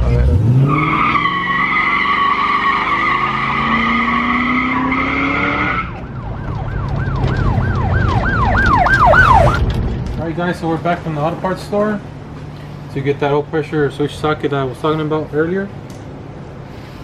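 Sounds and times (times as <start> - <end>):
siren wailing: 0.7 - 9.6.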